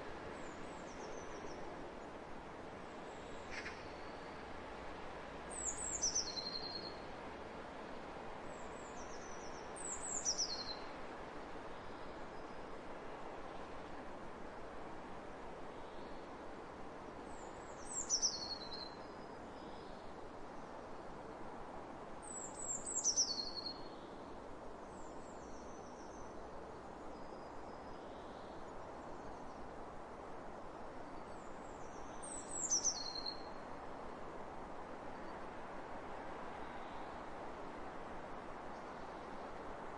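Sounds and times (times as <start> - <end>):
small songbird singing: 5.5 - 7.0, 8.5 - 10.9, 17.3 - 20.0, 22.2 - 24.1, 31.3 - 33.6
wind hiss: 28.2 - 39.9.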